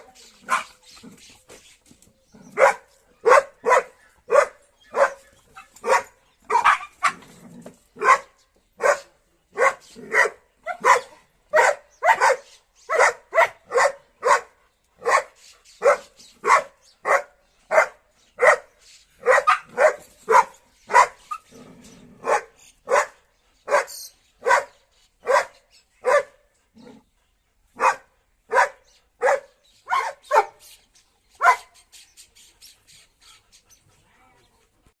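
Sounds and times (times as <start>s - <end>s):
dog barking excitedly: 2.6s - 7.3s, 8.0s - 21.4s, 22.2s - 26.4s, 27.8s - 30.6s, 31.4s - 31.7s.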